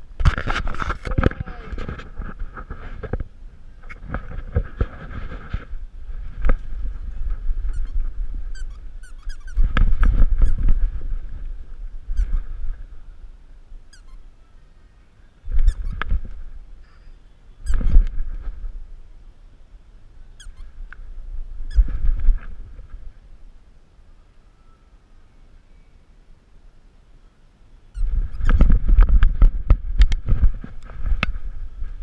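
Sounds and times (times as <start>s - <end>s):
camera bumps and rubbing: 0.2s - 8.2s, 9.3s - 11.1s, 17.7s - 18.7s, 28.0s - 32.0s.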